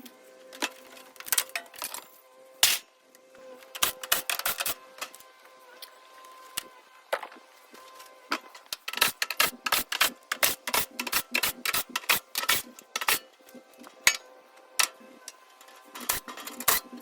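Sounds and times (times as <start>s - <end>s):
metallic clicks of hand tools: 8.7s - 13.3s.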